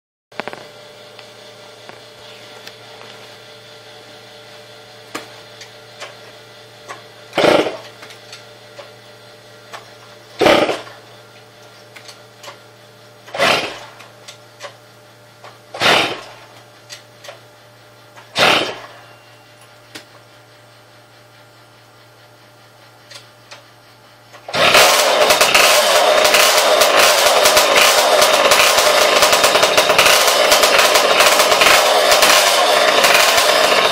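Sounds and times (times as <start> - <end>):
moped engine turning over: 0.4 - 3.2, 5.0 - 8.9, 10.4 - 11.1, 13.2 - 14.8, 15.4 - 17.4, 18.2 - 19.3, 24.3 - 33.9
steady low hum: 0.4 - 33.9
moped engine running loudly: 7.1 - 8.1, 10.3 - 11.2, 13.2 - 14.2, 15.7 - 16.6, 18.2 - 20.2, 24.3 - 33.9.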